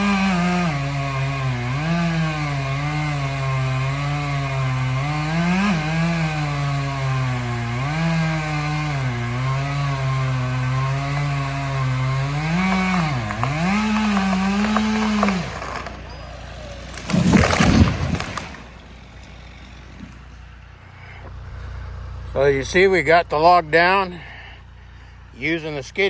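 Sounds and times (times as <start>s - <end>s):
chainsaw cutting wood: 0.0s - 20.8s.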